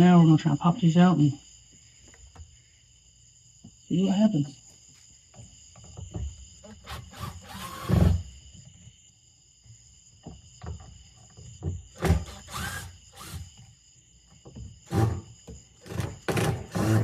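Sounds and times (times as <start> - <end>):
loud rasping noise: 6.6 - 8.3, 12.0 - 13.5, 14.8 - 17.0.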